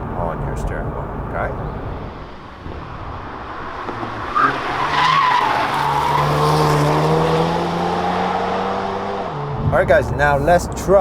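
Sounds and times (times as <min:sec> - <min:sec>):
car engine pulling at steady revs: 0:00.0 - 0:11.0
road noise: 0:00.0 - 0:11.0
tyre squeal: 0:04.3 - 0:07.8.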